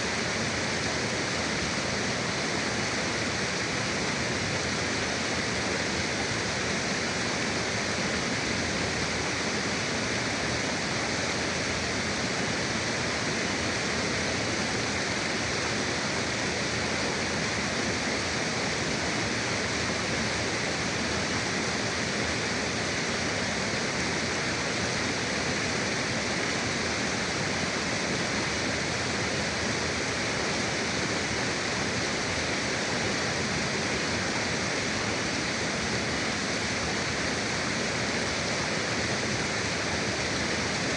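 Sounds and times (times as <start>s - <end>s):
forest river flowing: 0.0s - 40.9s.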